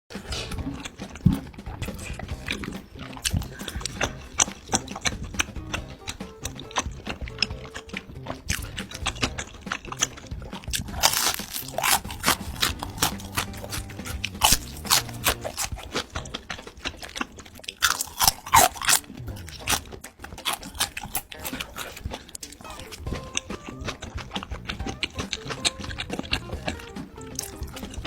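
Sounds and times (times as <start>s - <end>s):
crunchy food chewing: 0.1s - 28.0s.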